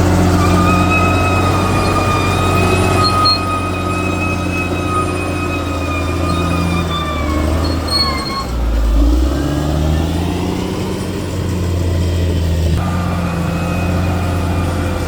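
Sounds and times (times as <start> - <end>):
high whining tones: 0.0 - 10.3
bulldozer diesel engine droning: 0.0 - 15.0.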